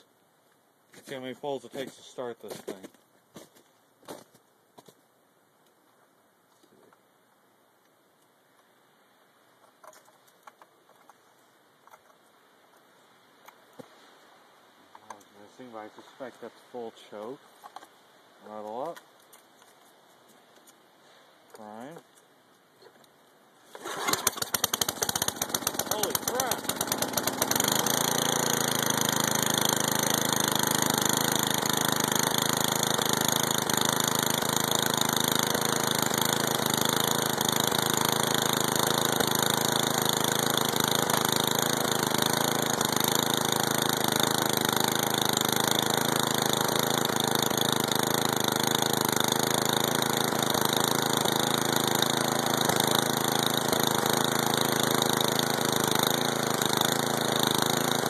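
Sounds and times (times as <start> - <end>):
snow thrower engine idling: 23.7 - 58.0.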